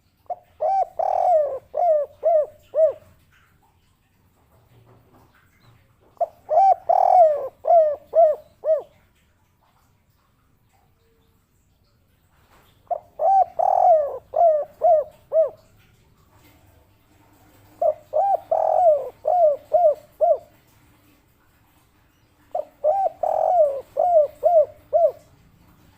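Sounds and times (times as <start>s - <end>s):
dove cooing: 0.2s - 3.3s, 6.2s - 9.0s, 12.9s - 15.8s, 17.4s - 20.7s, 22.5s - 25.4s.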